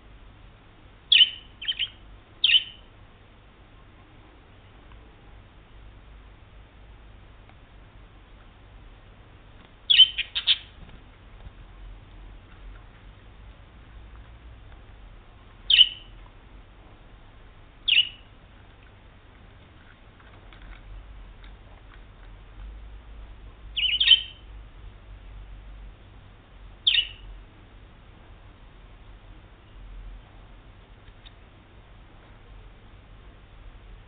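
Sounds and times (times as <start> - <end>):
budgerigar chirping: 1.1 - 2.8, 9.9 - 10.8, 15.7 - 16.2, 17.8 - 18.3, 23.8 - 24.5, 26.8 - 27.3.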